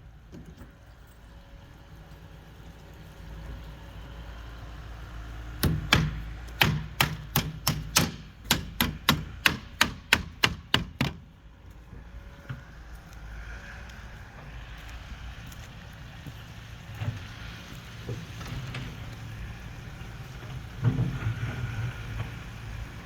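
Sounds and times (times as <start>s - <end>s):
hammer strikes: 5.6s - 11.2s.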